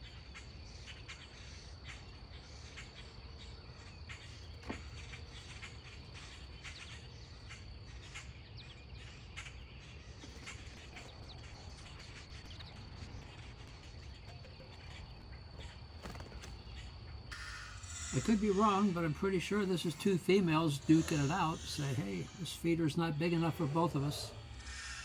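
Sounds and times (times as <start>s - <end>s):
high-pitched insect drone: 17.3s - 25.0s.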